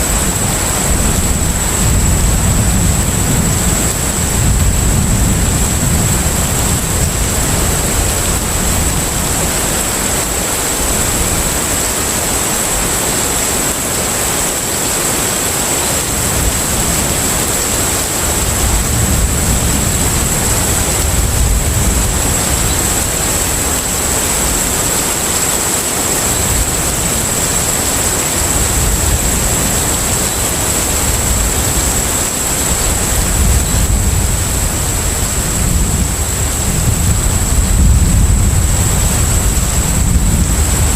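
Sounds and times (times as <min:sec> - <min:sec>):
deep rumble: 0:00.0 - 0:10.3, 0:26.4 - 0:40.9
wind and water rushing: 0:00.0 - 0:40.9.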